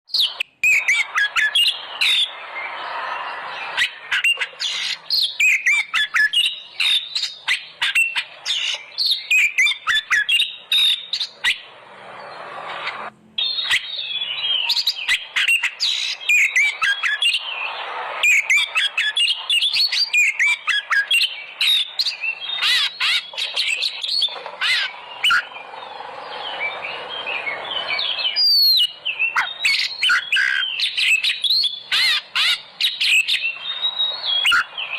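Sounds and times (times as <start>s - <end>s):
bird singing chirps and whistles: 0.1s - 34.9s
steady hiss: 1.7s - 5.2s, 10.5s - 13.4s, 21.3s - 29.3s.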